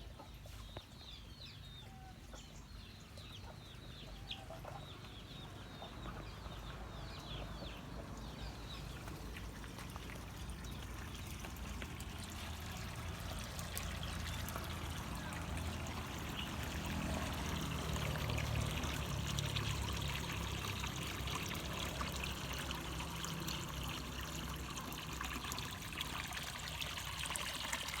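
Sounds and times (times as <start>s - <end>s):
water trickling and pouring: 6.4s - 28.0s.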